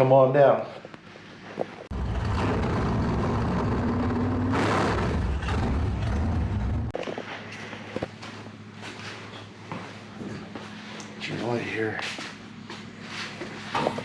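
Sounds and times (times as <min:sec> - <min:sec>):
machine motor droning: 0:01.9 - 0:07.0.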